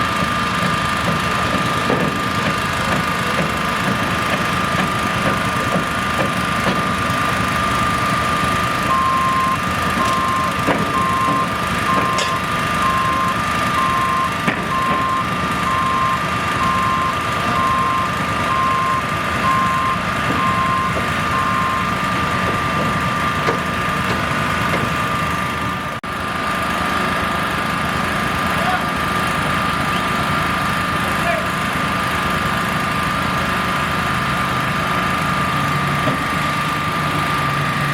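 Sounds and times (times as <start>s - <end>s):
construction vehicle engine: 0.0s - 37.9s
reversing alarm beeping: 7.4s - 22.2s.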